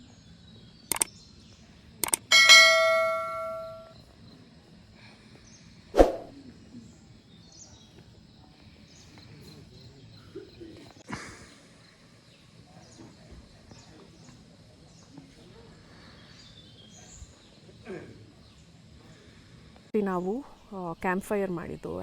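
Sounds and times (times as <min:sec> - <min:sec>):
metallic bell-like ring: 0:02.0 - 0:03.9.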